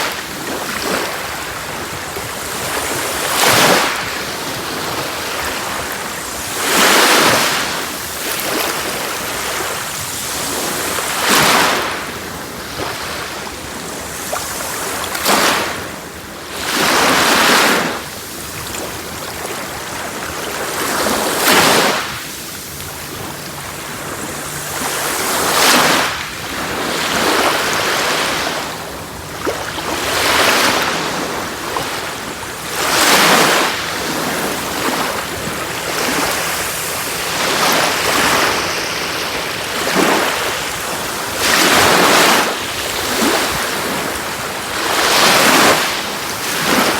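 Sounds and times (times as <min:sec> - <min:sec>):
waves breaking on shore: 0:00.0 - 0:46.9.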